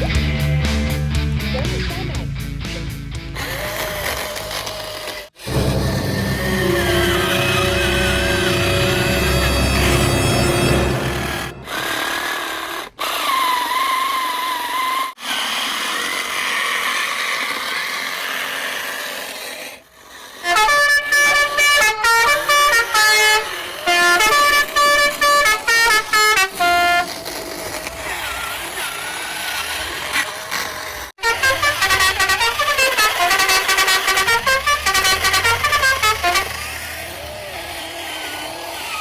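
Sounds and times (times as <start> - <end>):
horn playing short tune: 5.4 - 12.2, 31.2 - 36.5.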